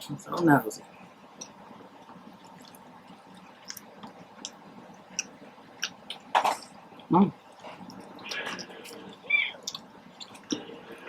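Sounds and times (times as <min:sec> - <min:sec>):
person chewing wetly: 0:01.4 - 0:06.3, 0:07.0 - 0:10.7.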